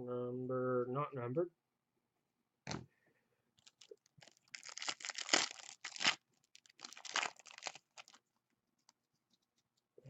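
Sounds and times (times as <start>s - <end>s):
wrapper tearing and crinkling: 3.6s - 8.2s.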